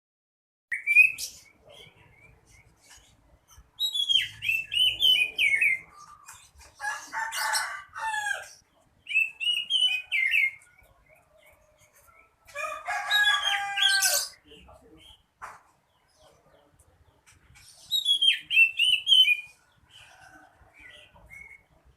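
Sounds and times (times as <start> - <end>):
bird singing whistled phrases: 0.7 - 2.4, 3.8 - 5.9, 9.1 - 10.6, 17.9 - 19.6.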